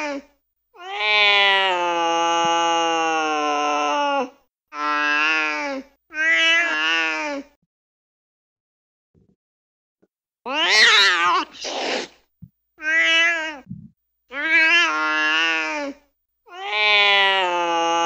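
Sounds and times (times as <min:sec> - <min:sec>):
recorded cat meows: 0:00.8 - 0:07.4, 0:10.5 - 0:12.1, 0:12.8 - 0:13.7, 0:14.3 - 0:18.0.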